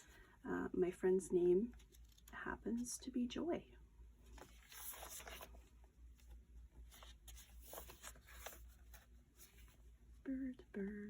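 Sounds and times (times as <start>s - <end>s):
paper pages being turned: 1.7s - 2.4s, 4.2s - 9.8s.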